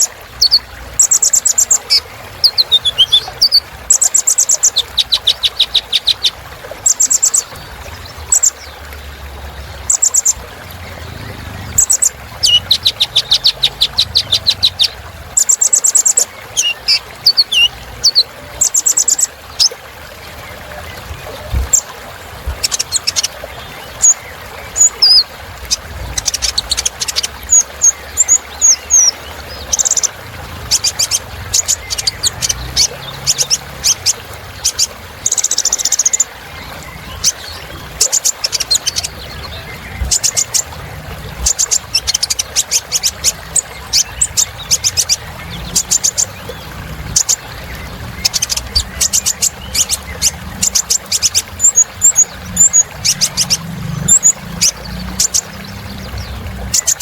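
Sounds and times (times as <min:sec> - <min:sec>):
sunbird high chirps and trills: 0:00.0 - 0:07.6, 0:11.8 - 0:19.8.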